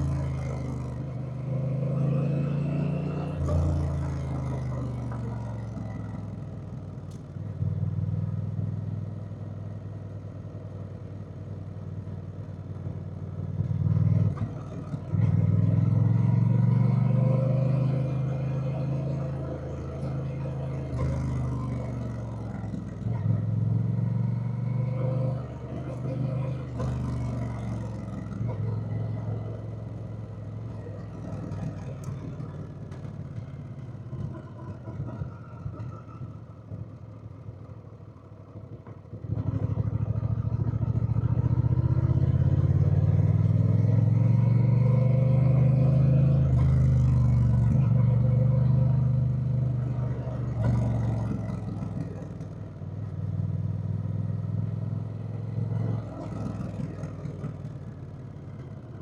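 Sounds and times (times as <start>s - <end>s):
motorcycle engine revving: 13.7s - 36.5s, 39.1s - 59.0s.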